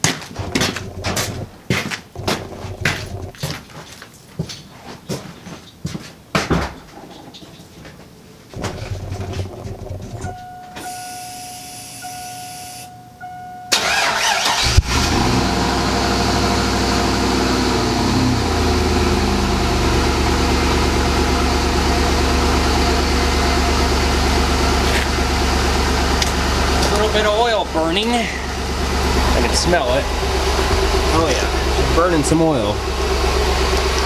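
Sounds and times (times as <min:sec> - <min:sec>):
car engine idling: 0:00.0 - 0:03.6, 0:13.7 - 0:34.0
starter cranking: 0:00.3 - 0:03.5, 0:13.8 - 0:15.4
electronic chime: 0:10.3 - 0:13.8.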